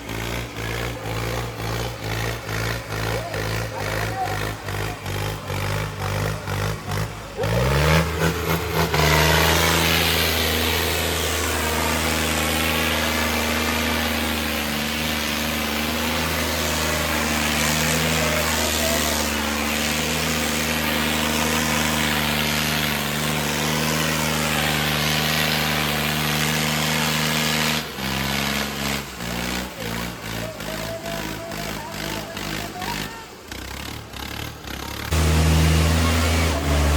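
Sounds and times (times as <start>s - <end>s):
diesel tractor engines running hard: 0.0s - 36.9s.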